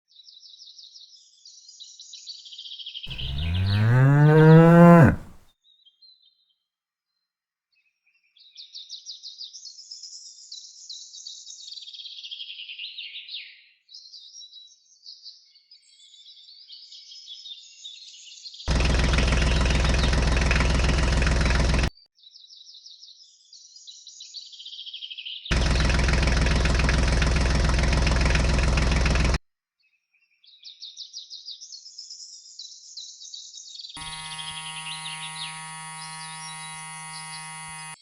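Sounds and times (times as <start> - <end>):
birds chirping: 3.1 - 5.4
long low animal call: 3.1 - 5.4
small engine starting: 18.7 - 21.9, 25.6 - 29.4, 34.0 - 38.0.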